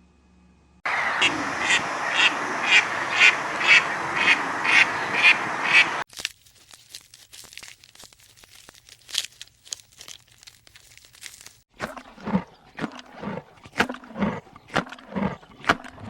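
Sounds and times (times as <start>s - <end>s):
dense background noise: 0.9s - 6.0s
ducks quacking: 0.9s - 6.0s
faint clicks and crackles: 6.1s - 16.0s.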